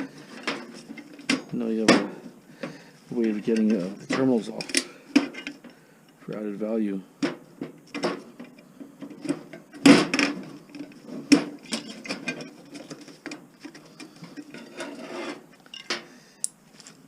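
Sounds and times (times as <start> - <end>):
metal tools clicking and clinking: 15.6 - 16.0.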